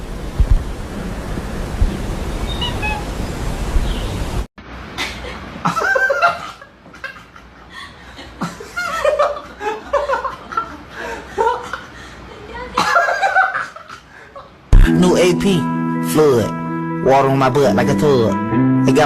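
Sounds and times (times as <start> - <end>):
low thumps: 0.0 - 2.5
steady noise: 0.0 - 4.8
people laughing: 5.0 - 14.5.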